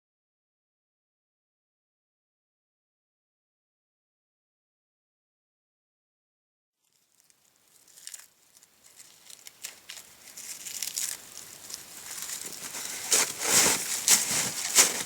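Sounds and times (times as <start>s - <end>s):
campfire crackling and popping: 6.9s - 15.0s.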